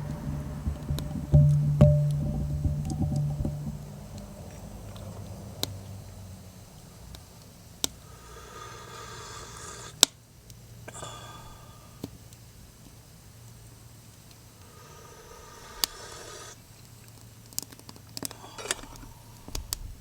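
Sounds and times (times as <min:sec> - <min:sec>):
faint low hum: 0:00.0 - 0:04.9.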